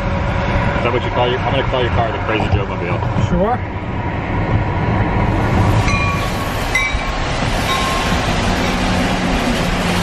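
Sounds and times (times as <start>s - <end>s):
train rumbling past: 0.0s - 10.0s
high train squeals: 5.8s - 8.9s.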